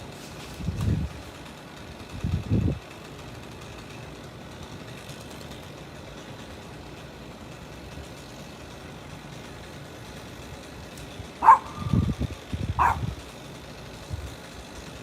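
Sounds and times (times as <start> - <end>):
distant engine idling: 7.5 - 14.9.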